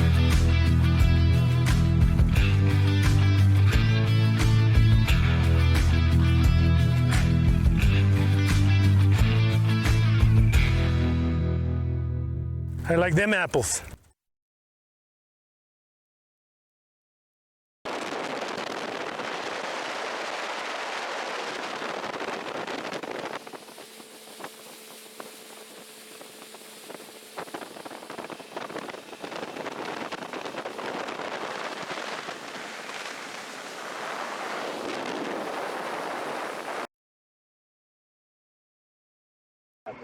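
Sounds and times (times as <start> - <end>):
wind buffeting microphone: 17.9 - 36.9.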